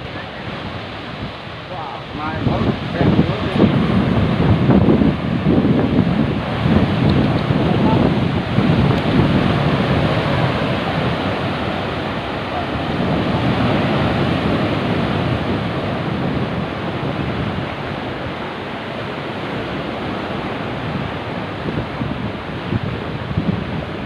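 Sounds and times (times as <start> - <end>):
sea waves breaking: 0.0 - 24.0
wind buffeting microphone: 0.0 - 24.0.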